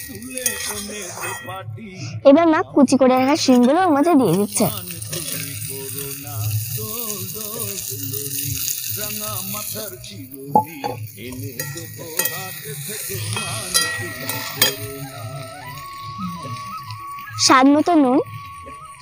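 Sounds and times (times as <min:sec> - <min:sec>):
beans sizzling in hot oil: 0:00.0 - 0:01.3, 0:03.9 - 0:19.0
utensils clinking: 0:00.0 - 0:01.6, 0:04.2 - 0:09.6, 0:10.5 - 0:17.1
quiet background music: 0:00.0 - 0:19.0.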